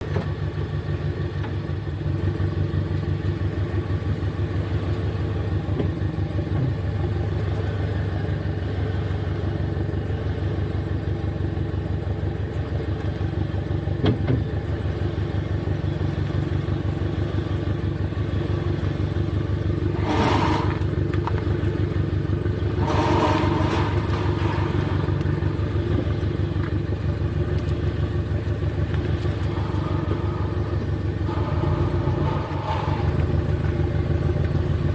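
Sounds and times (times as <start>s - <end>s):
car engine idling: 0.0s - 34.9s
short noisy bursts: 20.0s - 20.9s.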